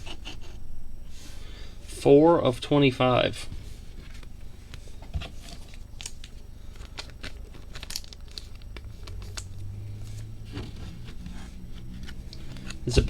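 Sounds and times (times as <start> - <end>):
cards and plastic rustling: 4.0 - 13.0.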